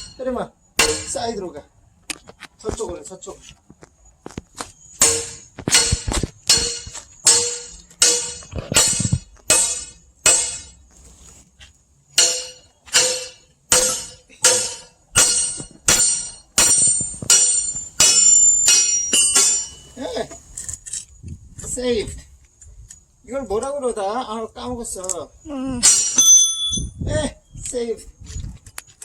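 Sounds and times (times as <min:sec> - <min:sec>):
sledgehammer striking steel wedge: 0:00.0 - 0:00.2, 0:00.8 - 0:01.3, 0:05.0 - 0:10.8, 0:12.2 - 0:20.0, 0:25.8 - 0:26.8.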